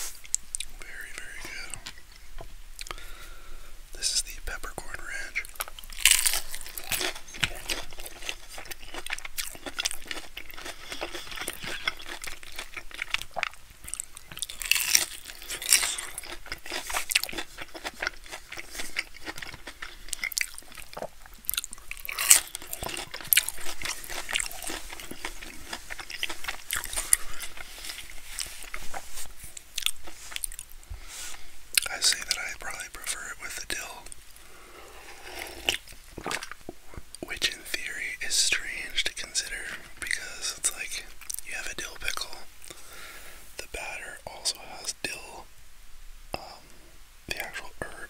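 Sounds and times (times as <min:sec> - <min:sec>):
crunchy chewing of fried food: 0:05.0 - 0:37.5.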